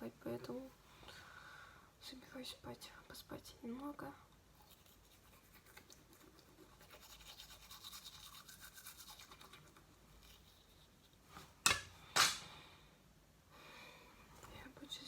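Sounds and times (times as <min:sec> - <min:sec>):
toothbrush scrubbing teeth: 0:04.5 - 0:11.1.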